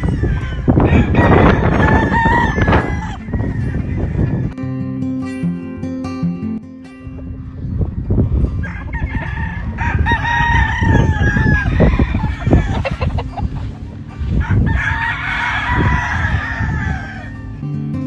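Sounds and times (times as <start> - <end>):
rooster crowing: 0.0 - 4.6, 8.4 - 17.6.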